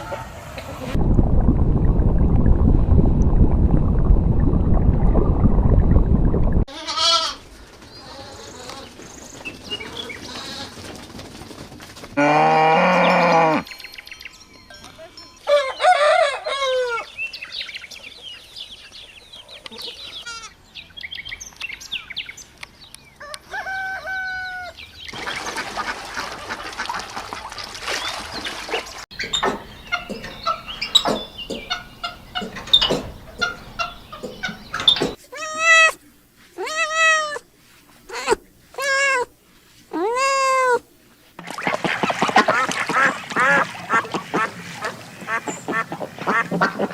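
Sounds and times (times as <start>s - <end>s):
rooster crowing: 15.5s - 17.1s, 23.2s - 24.8s
chickens clucking: 29.1s - 35.2s
cat meowing: 35.3s - 36.0s, 36.6s - 37.4s, 38.1s - 39.3s, 39.9s - 40.8s.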